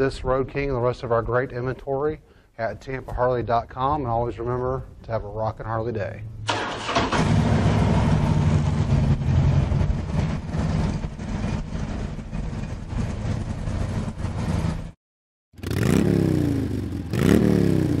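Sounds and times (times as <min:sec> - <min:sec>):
motorcycle engine revving: 0:06.6 - 0:18.0
motorcycle engine idling: 0:08.4 - 0:14.9.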